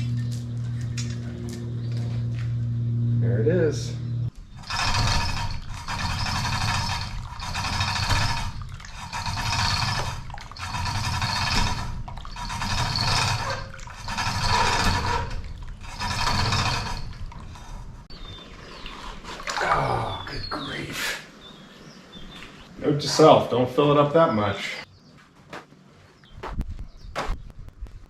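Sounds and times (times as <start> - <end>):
oil gushing and glugging: 4.3 - 20.4.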